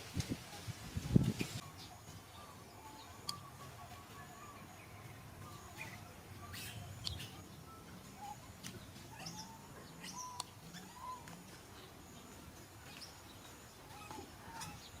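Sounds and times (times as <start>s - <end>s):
animal chirps and whistle calls: 1.6s - 11.6s
sharp clicks: 10.4s - 10.6s.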